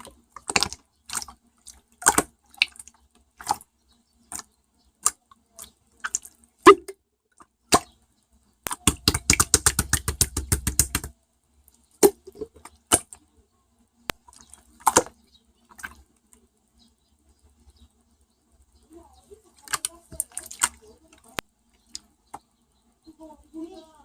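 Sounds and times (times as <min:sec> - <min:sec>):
sharp clicks and taps: 0:08.6 - 0:13.2.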